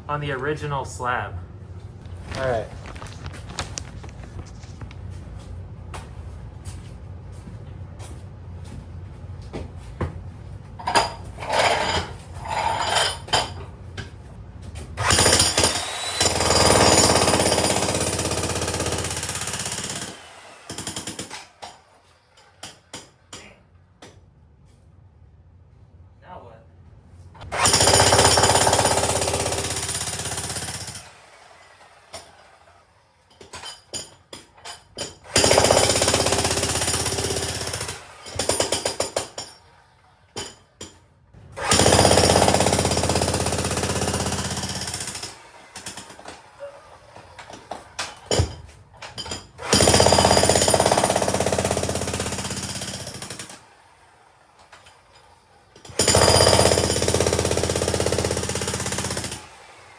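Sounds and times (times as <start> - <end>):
demolition hammer breaking concrete: 15.0 - 21.9, 27.4 - 31.1, 33.3 - 39.7, 41.6 - 46.6, 47.2 - 53.6, 55.8 - 59.5.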